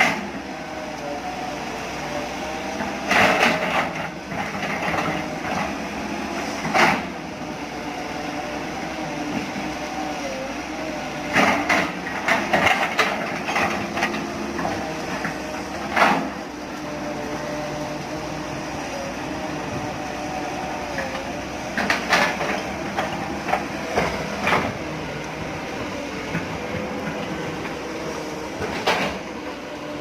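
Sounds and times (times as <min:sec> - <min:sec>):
machine running steadily: 0:00.0 - 0:30.0
sharp metallic clanks and knocks: 0:28.6 - 0:29.3.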